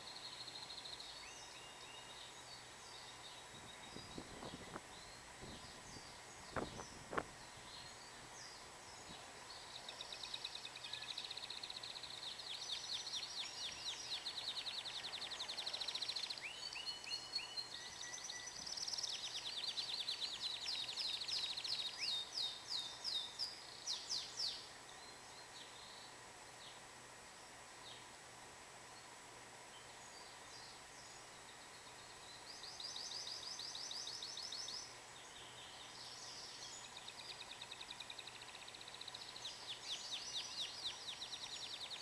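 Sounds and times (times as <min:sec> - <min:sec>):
canary singing fast trills: 0:00.0 - 0:26.2, 0:29.8 - 0:42.0.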